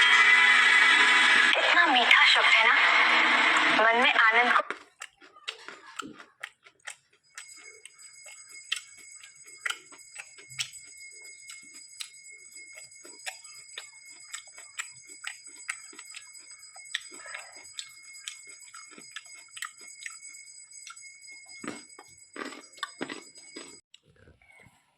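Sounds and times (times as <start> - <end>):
chewing raw vegetables: 4.5 - 24.8
high-pitched ringing tone: 7.2 - 23.8.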